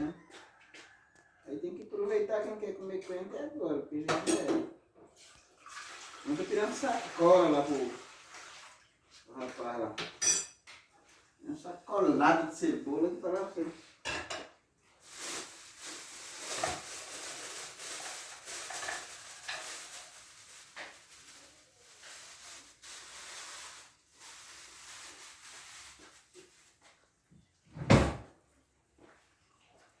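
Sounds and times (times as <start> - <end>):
rustling and clattering: 14.4 - 27.0.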